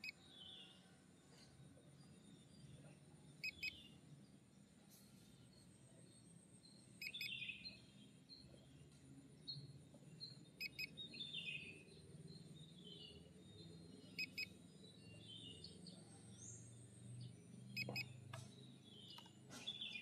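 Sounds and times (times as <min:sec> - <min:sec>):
faint birds chirping: 0:00.0 - 0:20.0
faint low hum: 0:00.0 - 0:20.0
sharp double beeps: 0:03.4 - 0:03.8, 0:10.6 - 0:10.9, 0:17.8 - 0:18.2.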